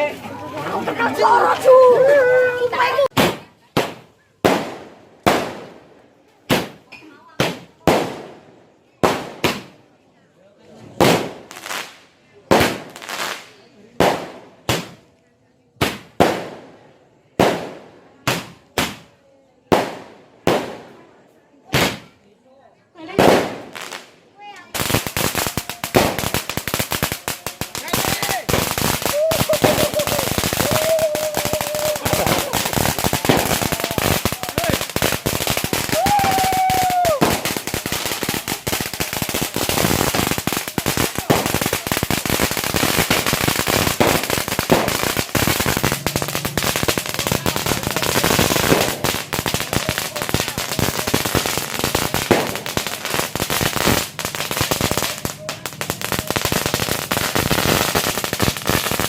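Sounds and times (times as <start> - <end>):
firecrackers going off: 0.0 - 10.0, 10.6 - 22.2, 22.9 - 59.0.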